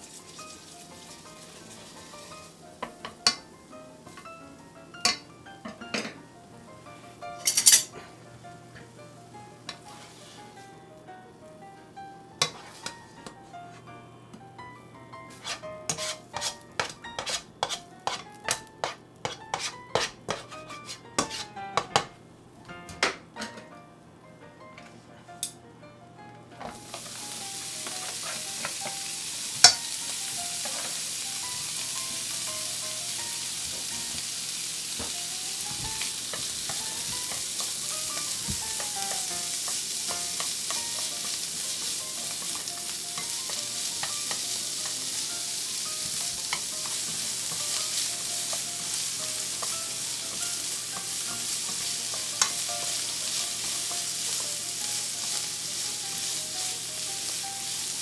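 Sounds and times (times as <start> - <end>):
food sizzling in oil: 0.0 - 7.9, 12.4 - 12.9, 15.3 - 21.6, 26.6 - 58.0
stirring in pan: 12.4 - 12.9, 15.3 - 21.5, 26.8 - 28.9, 29.5 - 32.3, 35.0 - 58.0.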